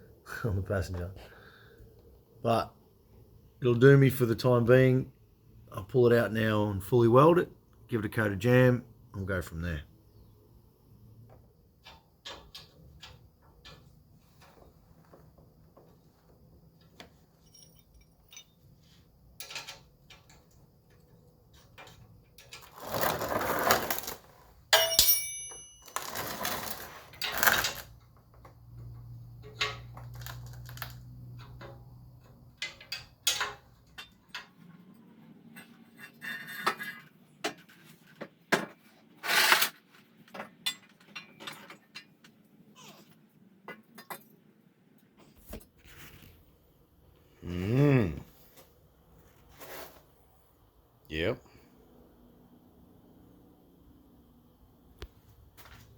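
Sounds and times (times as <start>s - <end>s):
ringing metallic clang: 24.7s - 26.1s
metal pipe clanks and knocks: 24.8s - 25.9s, 32.6s - 34.6s.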